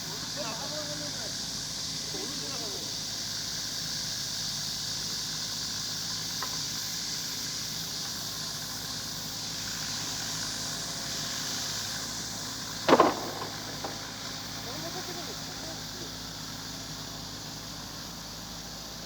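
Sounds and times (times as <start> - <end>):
high hiss: 0.0 - 19.0
idling machinery engine hum: 0.0 - 19.0.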